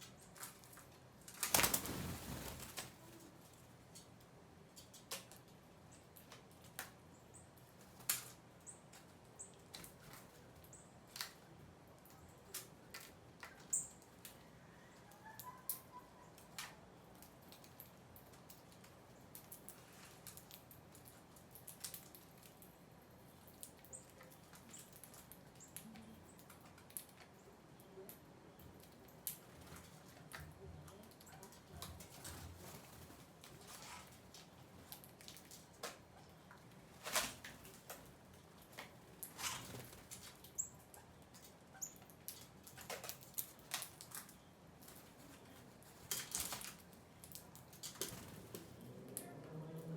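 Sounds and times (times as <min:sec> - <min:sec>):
birds pecking taps and clicks: 0:03.9 - 0:14.4, 0:15.0 - 0:32.4, 0:37.6 - 0:44.4
faint high bird chirps: 0:14.8 - 0:16.5.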